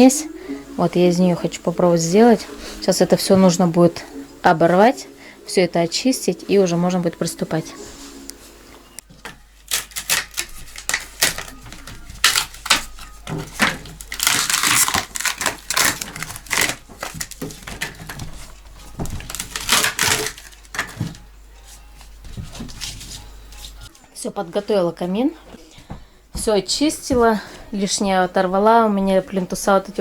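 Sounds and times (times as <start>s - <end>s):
wood strips cracking and snapping: 9.0s - 21.2s.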